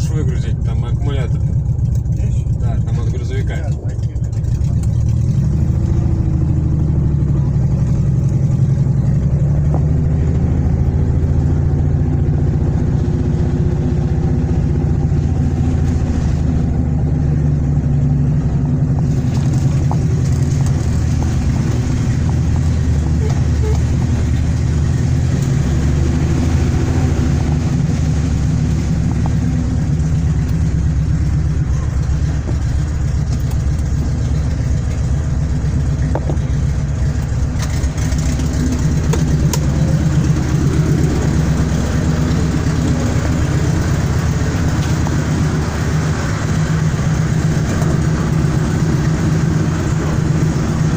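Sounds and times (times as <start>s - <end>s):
car engine droning: 0.0s - 50.9s.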